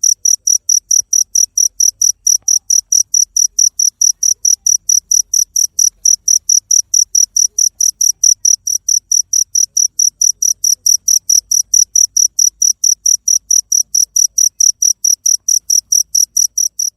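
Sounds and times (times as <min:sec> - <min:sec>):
cricket chirping: 0:00.0 - 0:16.9.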